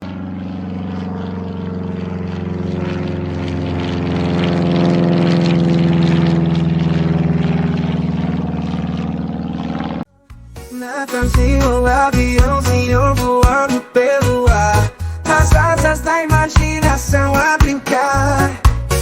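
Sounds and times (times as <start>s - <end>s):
propeller airplane engine droning: 0.0s - 10.1s.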